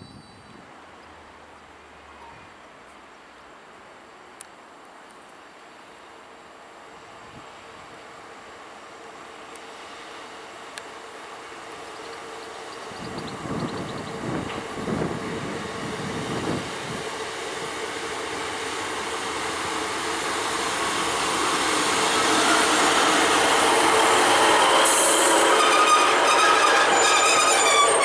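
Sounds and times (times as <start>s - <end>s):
train passing with loud rush: 0.0s - 28.0s
wheels squealing on rails: 21.8s - 28.0s.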